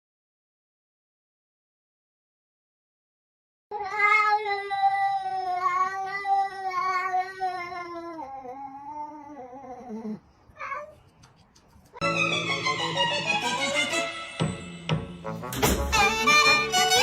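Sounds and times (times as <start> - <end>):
cat yowling: 3.7 - 11.0
music: 12.0 - 17.0.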